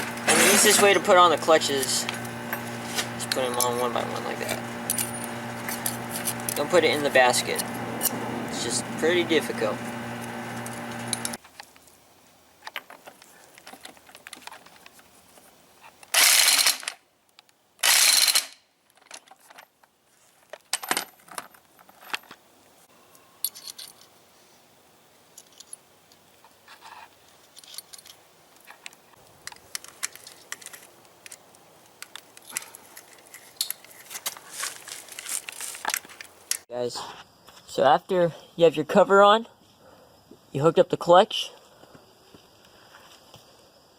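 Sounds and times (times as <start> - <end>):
metal parts clinking: 0.0 - 11.4, 16.1 - 17.0, 17.8 - 19.7, 23.4 - 24.1, 27.5 - 28.2, 29.4 - 31.4, 32.0 - 36.2
short noisy bursts: 0.0 - 11.4.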